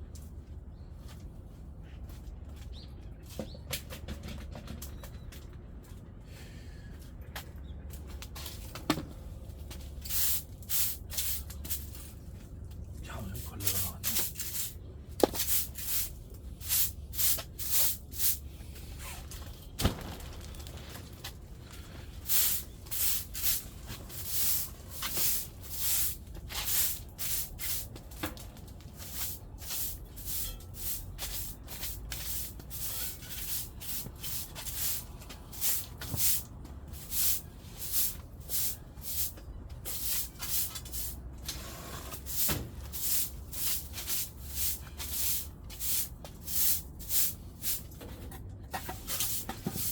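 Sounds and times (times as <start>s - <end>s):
brush cleaning stove: 13.3s - 14.8s, 15.4s - 18.4s, 22.2s - 27.9s, 29.0s - 41.2s, 41.9s - 47.9s, 48.8s - 49.9s.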